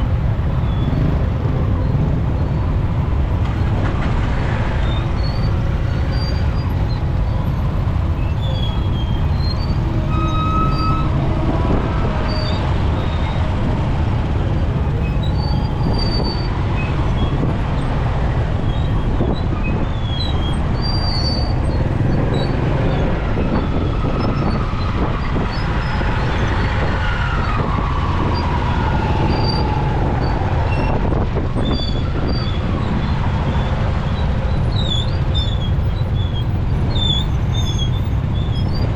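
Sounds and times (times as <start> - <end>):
motorcycle engine and wind rumble: 0.0 - 38.9
short high squeaks: 8.2 - 13.5, 34.6 - 38.9.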